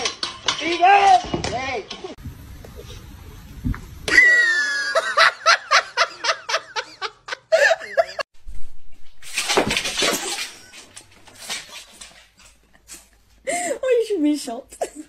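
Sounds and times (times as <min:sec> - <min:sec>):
person laughing hard: 0:04.1 - 0:08.2.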